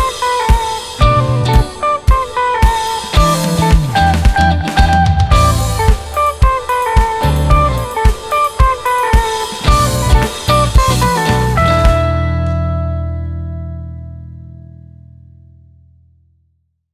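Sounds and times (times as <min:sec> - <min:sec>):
rock band playing: 0:00.0 - 0:13.3
guitar chord ringing: 0:00.0 - 0:15.6.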